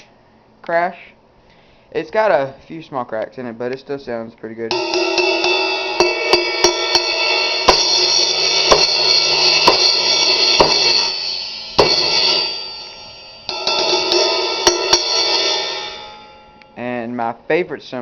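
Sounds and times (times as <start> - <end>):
crash cymbal struck: 4.7 - 16.9.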